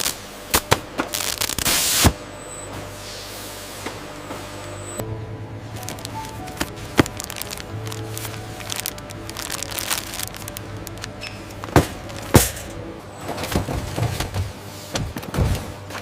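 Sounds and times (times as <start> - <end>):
machinery hum: 0.0 - 16.0
background music: 4.9 - 16.0.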